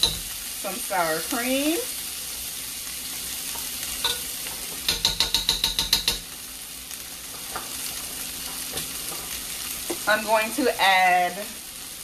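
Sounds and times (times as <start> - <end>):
food sizzling in a pan: 0.0 - 12.0
spoon tapping metal rim: 4.0 - 6.3.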